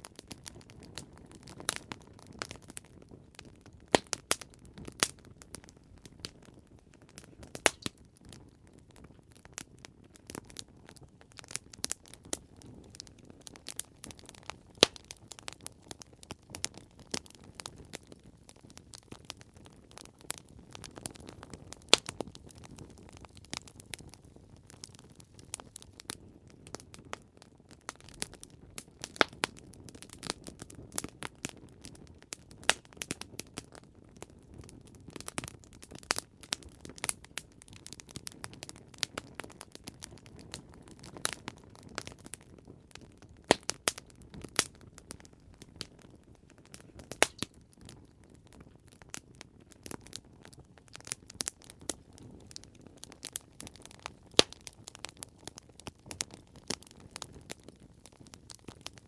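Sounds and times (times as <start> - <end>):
campfire crackling: 0.0 - 59.0
wood popping and snapping: 7.6 - 7.9, 47.2 - 47.5.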